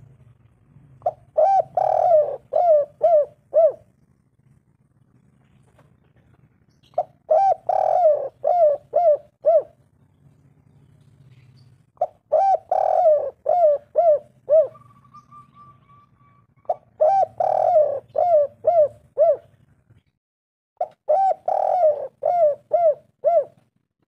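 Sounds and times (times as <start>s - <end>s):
dove cooing: 1.0s - 4.3s, 6.2s - 9.9s, 11.3s - 19.6s, 20.8s - 23.7s.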